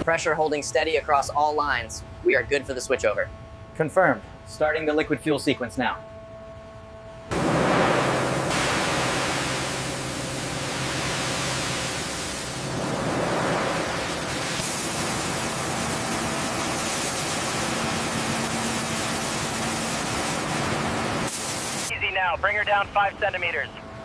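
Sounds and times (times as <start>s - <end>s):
low hum: 6.0s - 21.9s
machinery rushing roar: 7.3s - 21.9s.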